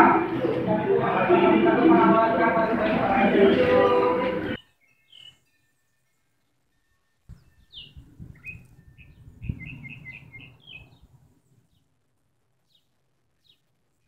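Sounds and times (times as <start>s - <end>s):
low rumbling noise: 0.0s - 4.6s
bird chirping: 4.5s - 11.9s, 12.6s - 13.7s.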